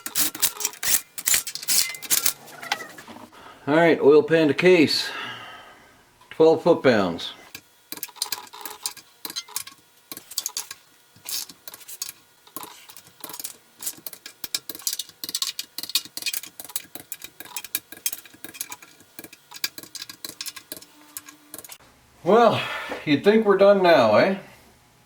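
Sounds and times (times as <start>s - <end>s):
ratchet wrench clicking: 0.0s - 2.4s, 7.9s - 21.8s.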